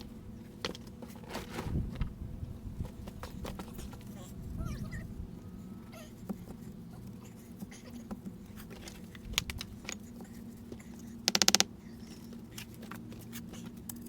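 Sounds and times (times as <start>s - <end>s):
steady low hum: 0.0s - 14.0s
tools clicking and knocking on stone: 8.1s - 14.0s.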